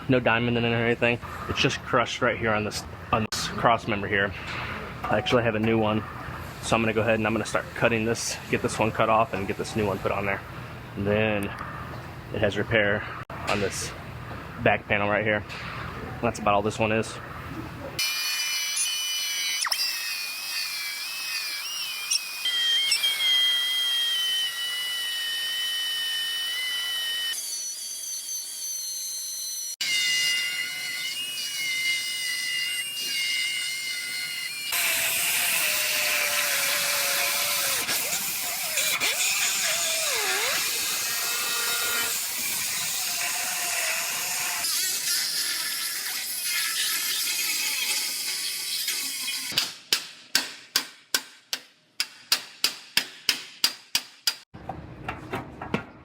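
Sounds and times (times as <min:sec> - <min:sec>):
power cutting tool whining: 0:18.0 - 0:44.8.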